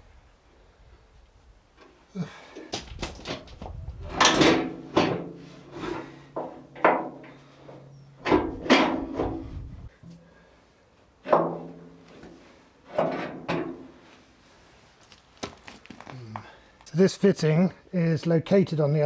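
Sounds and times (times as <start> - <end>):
parts clunking and scraping: 1.8 - 16.9.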